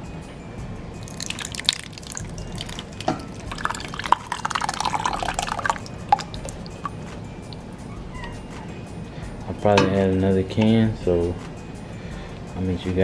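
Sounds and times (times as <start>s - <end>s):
thick sauce pouring and plopping: 1.0s - 7.6s.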